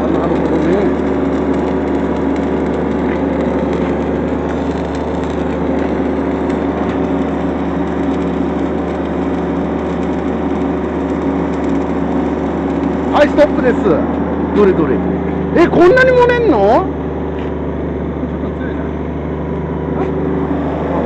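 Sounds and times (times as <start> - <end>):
engine-driven welder humming: 0.0 - 21.0.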